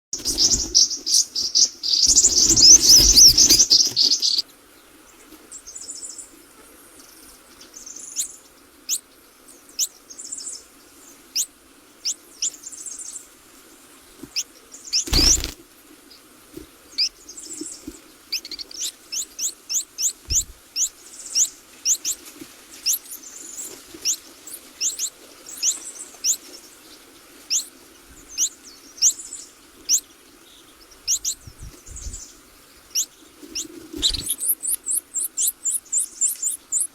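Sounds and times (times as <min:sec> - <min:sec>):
wings fluttering: 0:00.2 - 0:04.4, 0:14.2 - 0:15.7, 0:33.2 - 0:34.9
small birds chirping: 0:00.2 - 0:13.3, 0:14.2 - 0:16.3, 0:16.9 - 0:36.9.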